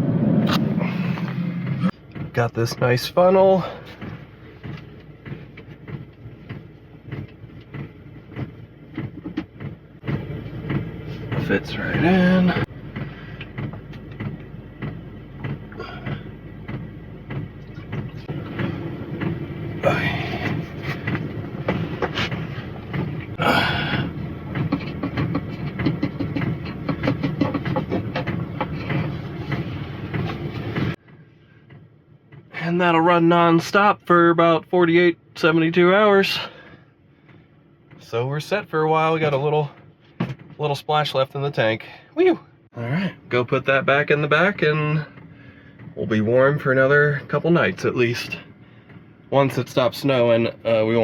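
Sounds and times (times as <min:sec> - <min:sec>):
heavy low rumble: 0:00.0 - 0:31.0
fuel glugging through a funnel: 0:00.4 - 0:31.0
small clunks: 0:03.8 - 0:32.5, 0:39.2 - 0:40.6.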